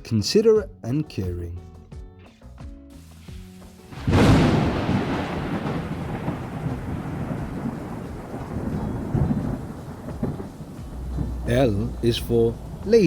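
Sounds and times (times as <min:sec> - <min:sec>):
steady rain: 0:03.5 - 0:13.0
thunder rolling: 0:03.9 - 0:13.0.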